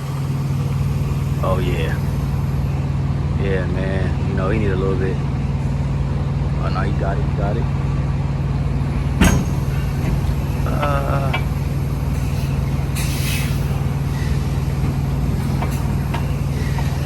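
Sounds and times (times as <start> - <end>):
truck diesel engine idling: 0.0 - 17.0
air hiss: 9.0 - 17.0.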